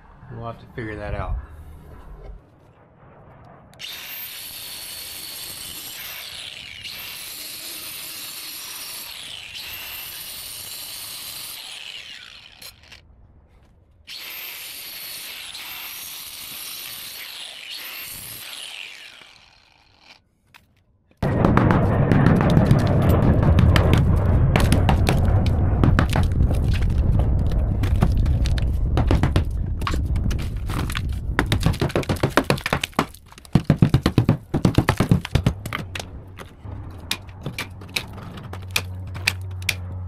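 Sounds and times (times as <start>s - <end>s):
power tool cutting drywall: 3.8s - 13.0s, 14.1s - 20.2s.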